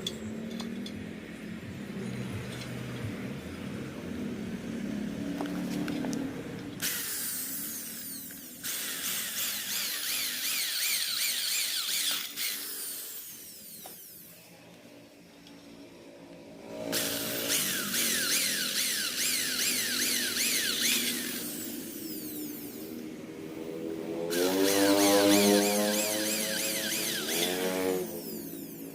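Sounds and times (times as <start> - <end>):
electric drill grinding metal: 6.8 - 14.6, 16.6 - 23.2, 24.3 - 28.9.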